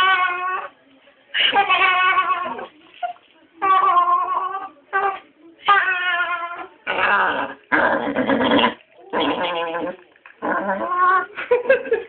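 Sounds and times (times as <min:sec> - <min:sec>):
dog growly talking vocalizations: 0:03.6 - 0:11.3.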